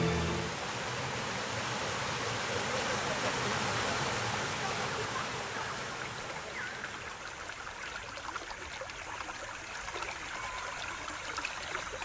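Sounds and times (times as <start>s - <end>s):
creek water running: 0.0s - 12.0s.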